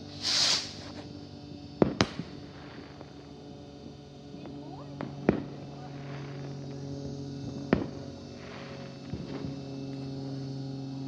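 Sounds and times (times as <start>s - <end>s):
firework bang: 0.2s - 0.9s, 1.8s - 3.0s
firework pops: 0.2s - 1.1s, 1.8s - 3.2s, 7.7s - 8.0s.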